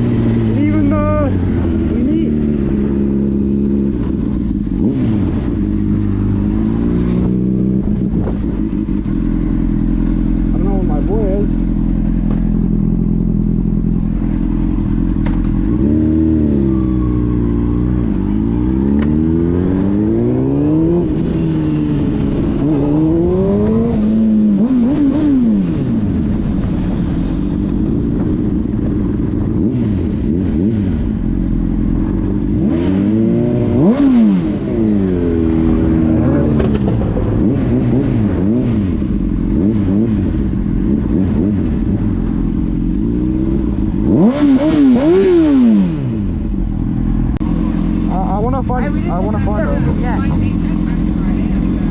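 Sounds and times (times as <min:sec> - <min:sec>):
car engines revving: 0:00.0 - 0:51.9.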